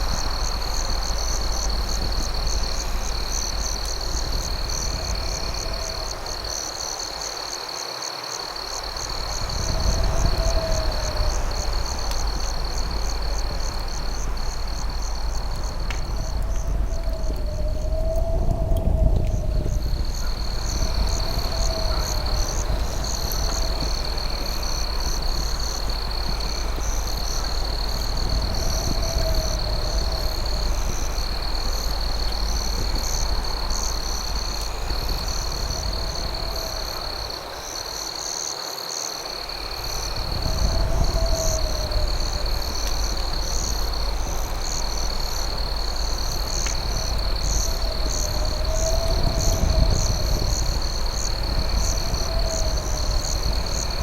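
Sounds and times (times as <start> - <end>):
low rumble: 0.0 - 6.7, 9.0 - 37.4
crickets trilling: 0.0 - 54.0.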